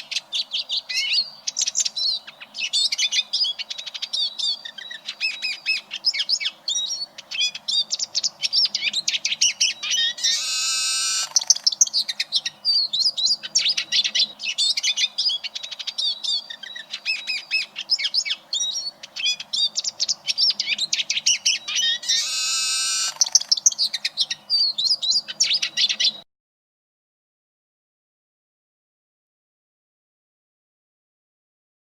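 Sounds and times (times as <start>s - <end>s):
bird twittering song: 0.0s - 26.2s
wheezy buzzing bird note: 10.2s - 11.6s, 22.0s - 23.5s.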